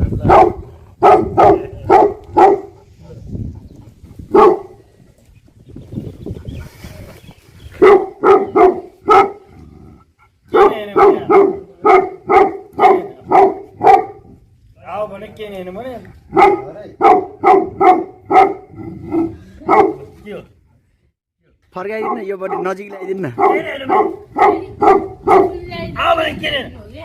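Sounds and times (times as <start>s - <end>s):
dog barking deeply: 0.1s - 3.3s, 3.9s - 4.9s, 7.7s - 14.4s, 16.3s - 20.2s, 21.9s - 25.7s.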